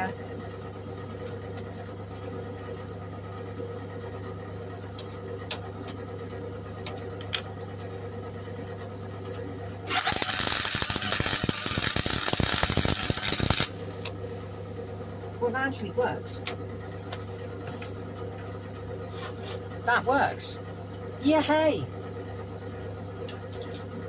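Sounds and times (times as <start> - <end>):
welder electrical hum: 0.0 - 24.0
welding arc crackle: 9.9 - 13.8.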